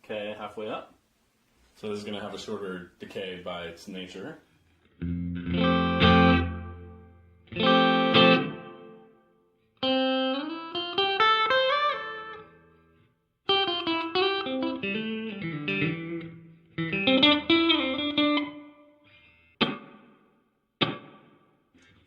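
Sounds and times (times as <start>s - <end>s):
clean electric guitar notes: 4.9s - 19.9s.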